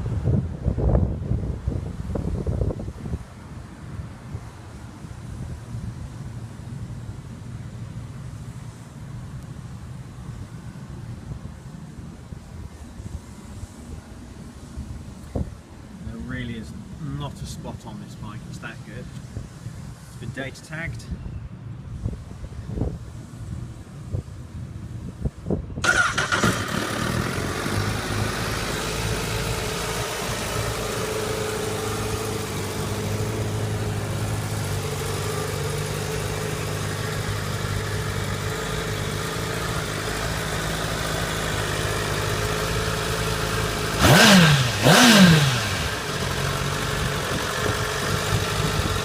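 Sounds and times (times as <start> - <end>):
motorcycle engine revving: 25.8 - 49.0
motorcycle engine idling: 26.0 - 49.0.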